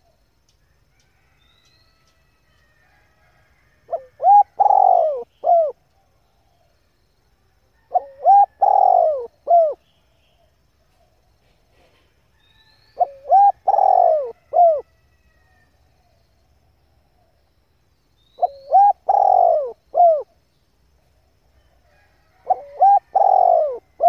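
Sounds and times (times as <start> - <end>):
dove cooing: 3.9 - 5.8, 7.8 - 9.8, 13.0 - 14.8, 18.4 - 20.4, 22.4 - 24.0.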